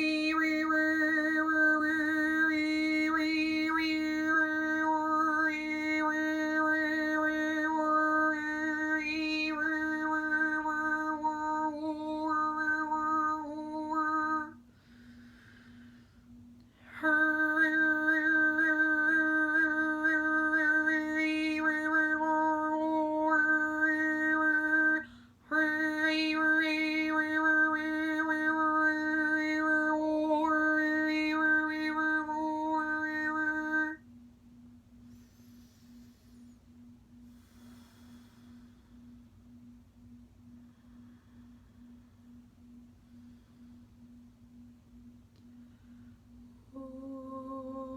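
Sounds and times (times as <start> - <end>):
woman overtone singing: 0.0 - 14.6, 16.8 - 34.0, 46.7 - 47.9
singer breathing in: 14.7 - 16.4, 35.1 - 36.6, 37.2 - 39.2.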